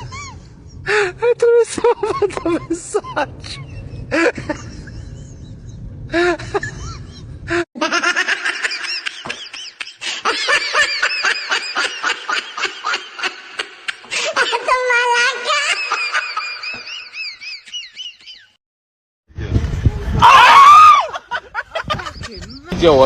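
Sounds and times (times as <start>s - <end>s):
high-pitched laughter: 1.2s - 18.5s, 20.8s - 22.7s.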